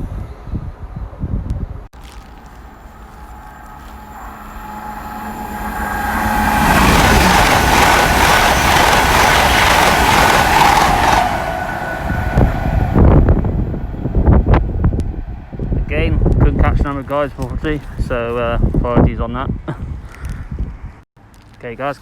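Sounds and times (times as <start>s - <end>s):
passenger train rushing past: 0.0s - 18.8s.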